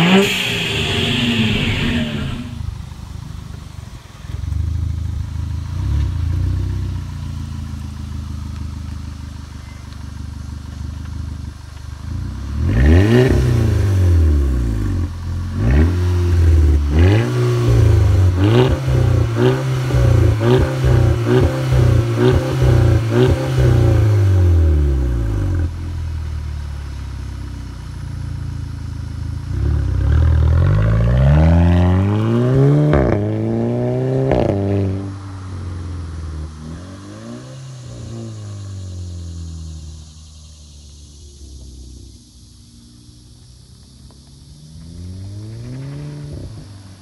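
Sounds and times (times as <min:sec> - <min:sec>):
car engine revving: 0:00.0 - 0:09.6, 0:10.4 - 0:26.2, 0:26.8 - 0:47.0.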